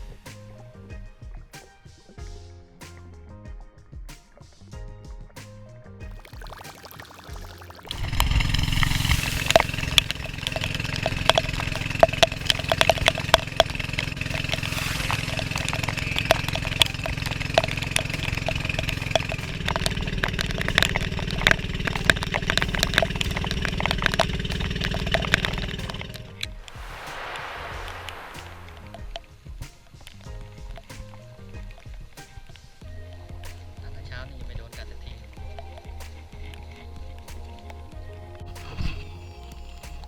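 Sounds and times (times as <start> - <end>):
sharp ticks: 6.3 - 26.5
engine running: 7.9 - 29.0.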